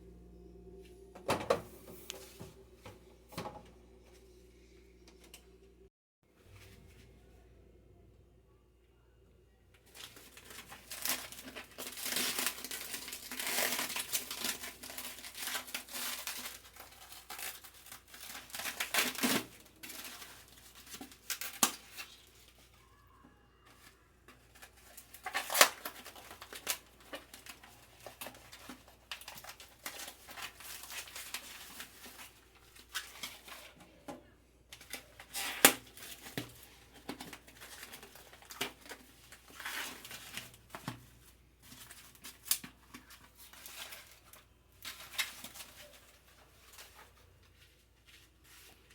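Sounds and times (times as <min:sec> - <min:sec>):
plastic crinkling and rustling: 0:09.8 - 0:23.0, 0:23.6 - 0:48.9.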